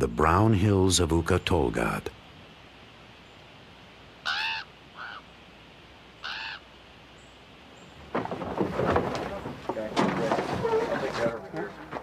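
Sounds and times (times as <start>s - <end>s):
bird cawing: 4.2s - 5.4s, 6.1s - 6.8s.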